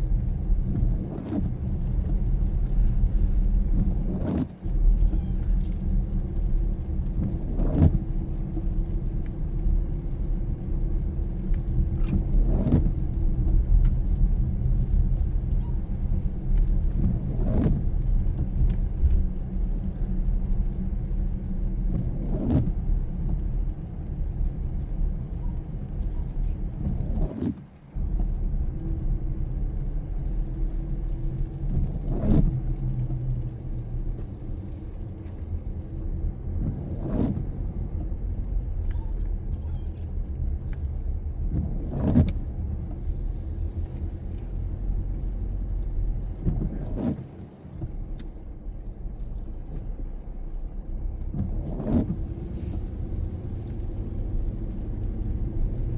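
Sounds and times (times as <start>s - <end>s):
car driving on wet road: 0.0s - 55.9s
windshield wiper swish: 0.7s - 6.0s, 7.2s - 8.0s, 12.0s - 12.9s, 17.0s - 18.8s, 21.9s - 22.7s, 34.1s - 37.5s, 40.7s - 50.2s, 51.4s - 55.1s.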